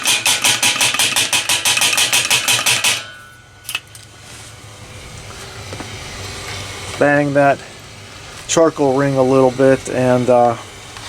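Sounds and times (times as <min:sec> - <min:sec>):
fast metallic rattling: 0:00.0 - 0:03.8.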